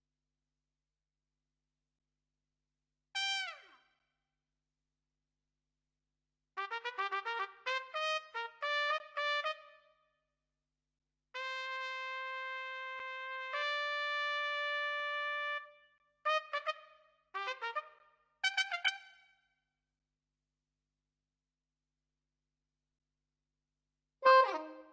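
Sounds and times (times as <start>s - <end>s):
solo trumpet: 6.6s - 10.0s, 11.4s - 19.3s, 24.2s - 24.9s.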